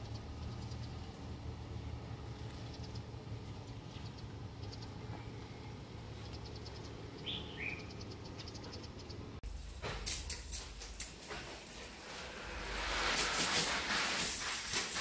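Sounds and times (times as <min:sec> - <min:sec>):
bird chirps: 0:02.6 - 0:09.4
sharp knocks and rustles: 0:09.4 - 0:15.0.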